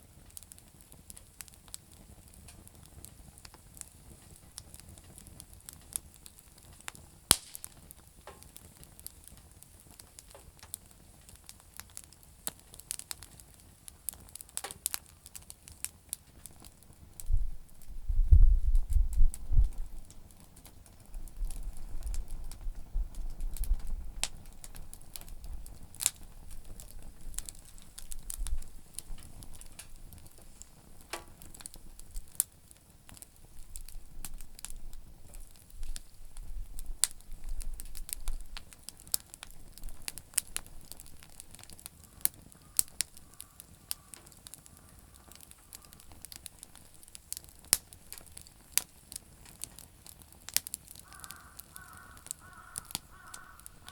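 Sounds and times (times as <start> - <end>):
campfire crackling and popping: 0.0 - 53.9
low rumble: 17.2 - 20.1.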